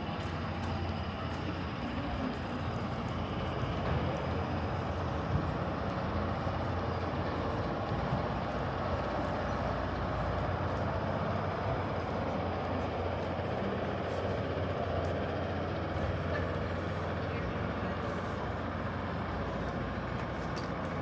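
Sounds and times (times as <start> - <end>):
city traffic rumble: 0.0 - 21.0.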